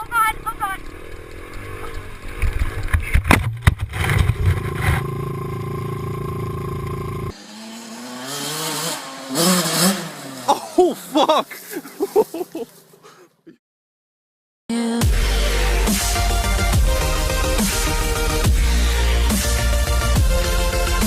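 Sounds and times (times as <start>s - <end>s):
motocross bike engine running: 3.9s - 10.6s.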